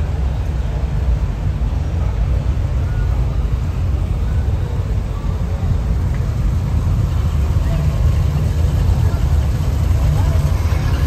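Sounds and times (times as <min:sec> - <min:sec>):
car engines rumbling: 0:00.0 - 0:11.0.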